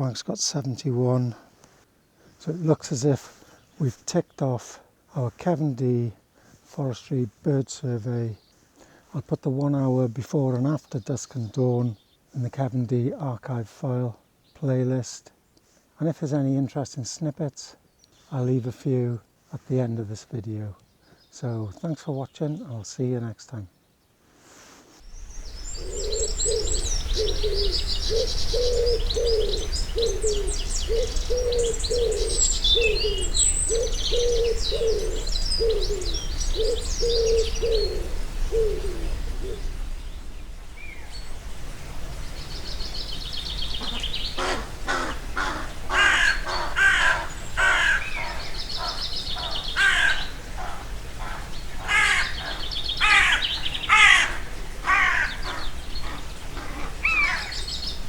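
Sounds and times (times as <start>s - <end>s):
small birds twittering: 17.7s - 24.2s, 25.0s - 58.0s
bird giving low note: 25.0s - 58.0s
harsh cawing calls: 25.3s - 39.8s, 43.6s - 57.8s.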